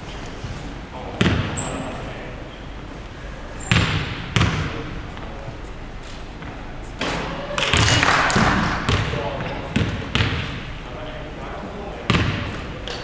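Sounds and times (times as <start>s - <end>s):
basketball bouncing: 1.2s - 1.6s, 3.6s - 4.8s, 7.6s - 10.6s, 12.1s - 12.6s
shoe squeak: 1.6s - 1.9s.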